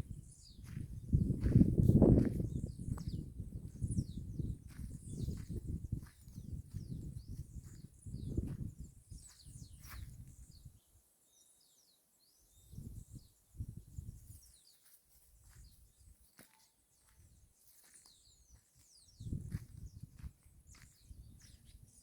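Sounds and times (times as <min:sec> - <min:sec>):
birds chirping: 0:00.0 - 0:11.0, 0:16.4 - 0:22.0.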